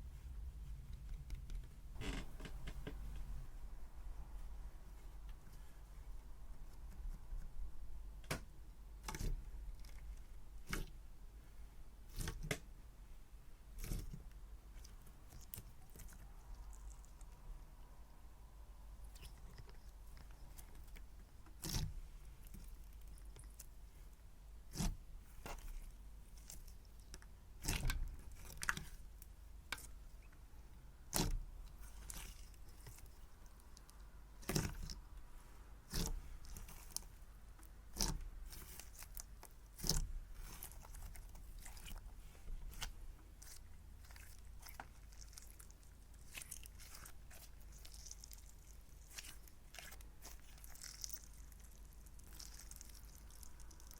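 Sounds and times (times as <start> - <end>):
slime crackling and tearing: 13.7 - 14.2, 31.0 - 35.2, 35.8 - 53.9.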